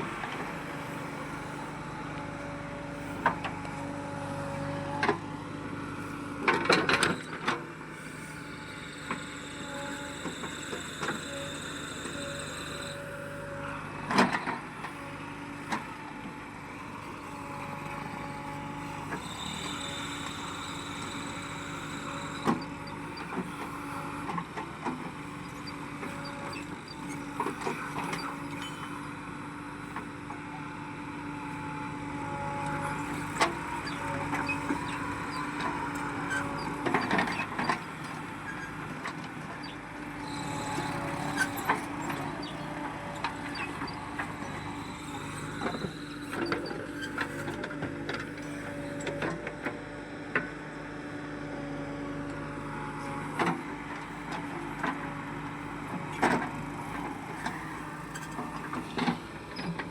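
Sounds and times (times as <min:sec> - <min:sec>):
heavy machine engine running: 0:00.0 - 0:59.9.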